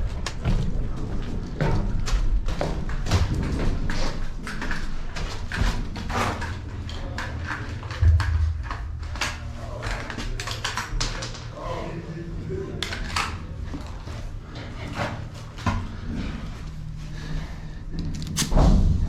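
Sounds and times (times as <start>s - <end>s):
low rumbling handling noise: 0.0s - 11.6s
footsteps: 7.9s - 11.4s
heavy thump: 8.0s - 9.5s.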